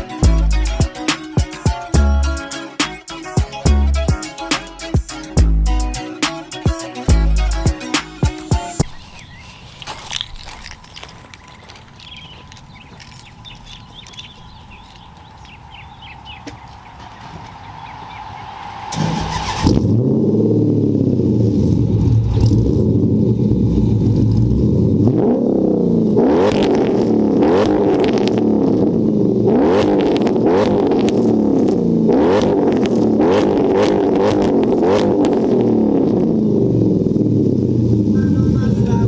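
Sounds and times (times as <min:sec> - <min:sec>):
car engine revving: 0:13.2 - 0:39.0.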